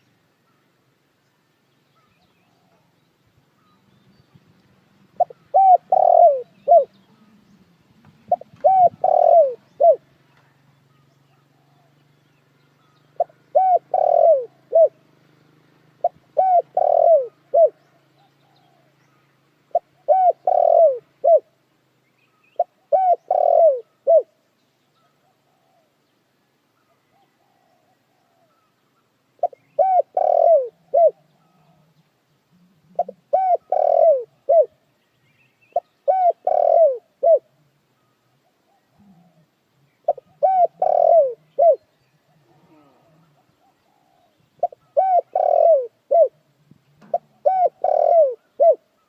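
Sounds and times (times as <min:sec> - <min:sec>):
faint bird chirps: 0:00.0 - 0:49.0
dove cooing: 0:02.4 - 0:03.0, 0:05.1 - 0:12.0, 0:13.2 - 0:15.1, 0:15.9 - 0:19.0, 0:19.7 - 0:21.6, 0:22.6 - 0:24.4, 0:25.0 - 0:26.0, 0:26.9 - 0:28.7, 0:29.4 - 0:34.8, 0:35.7 - 0:49.0.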